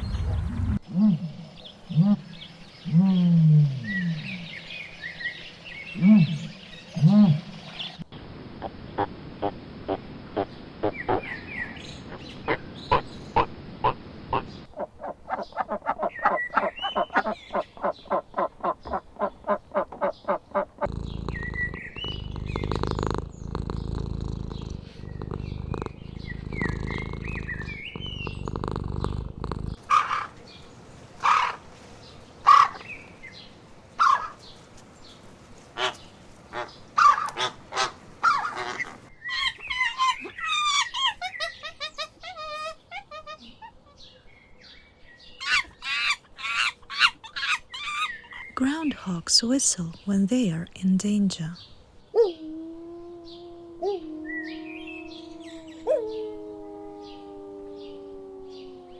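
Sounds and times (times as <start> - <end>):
low rumble: 0.0 - 0.9
bird calls: 10.4 - 48.6.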